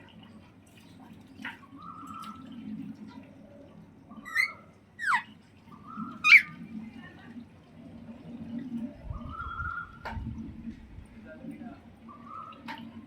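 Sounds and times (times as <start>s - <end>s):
parakeet calling: 4.2s - 5.3s, 5.9s - 6.5s.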